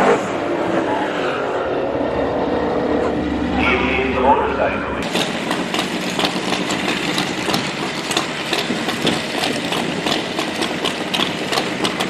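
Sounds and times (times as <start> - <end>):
racing engine idling unevenly: 2.8 - 12.0
engine pops and crackles: 5.0 - 12.0.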